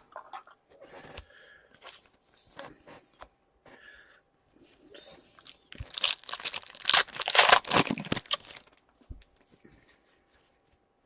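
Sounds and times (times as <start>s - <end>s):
foil wrapper tearing and crinkling: 5.4s - 8.8s.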